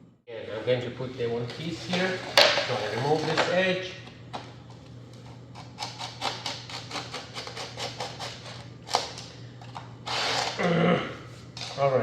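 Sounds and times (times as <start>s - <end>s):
low steady hum: 0.0s - 12.0s
hand tool cutting laminate plank: 5.6s - 9.1s.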